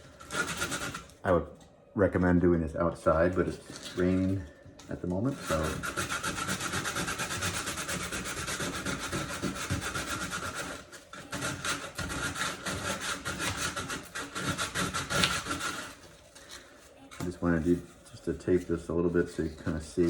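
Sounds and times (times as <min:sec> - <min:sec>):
sandpaper rubbing foam board: 0:00.2 - 0:01.1, 0:05.3 - 0:16.2, 0:17.3 - 0:20.0.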